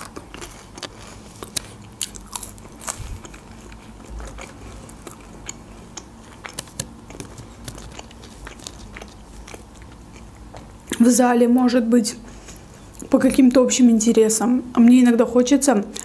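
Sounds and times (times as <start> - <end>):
crunchy chewing of fries: 0.0 - 11.0.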